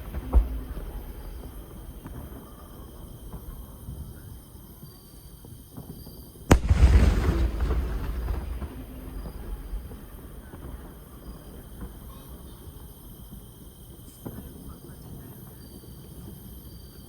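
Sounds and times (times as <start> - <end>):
firework shell bursting: 6.5 - 13.5.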